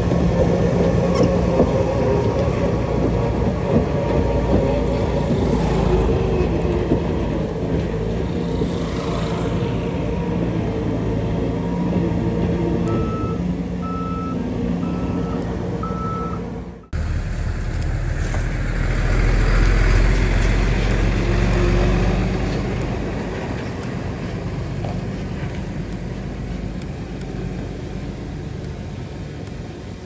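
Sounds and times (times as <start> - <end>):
deep engine rumble: 0.0 - 29.8
heavy diesel engine running: 0.0 - 30.0
reversing alarm beeping: 12.9 - 17.1.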